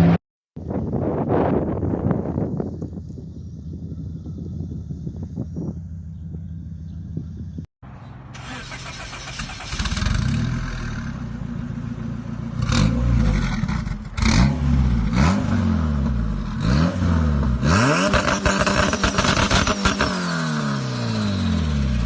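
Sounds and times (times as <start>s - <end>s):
car engine revving: 8.4s - 22.0s.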